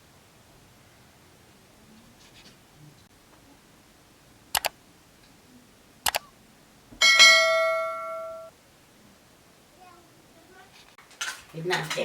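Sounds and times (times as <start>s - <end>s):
sharp double clicks: 4.5s - 4.8s, 6.0s - 6.3s
ringing metallic strike: 7.0s - 8.5s.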